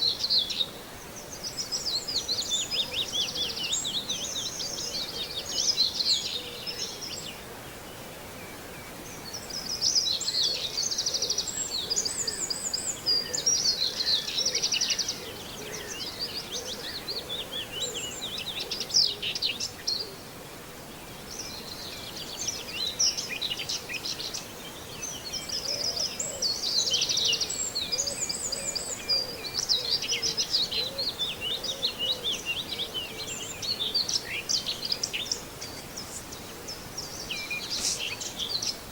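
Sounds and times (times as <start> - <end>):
steady outdoor background: 0.0 - 38.9.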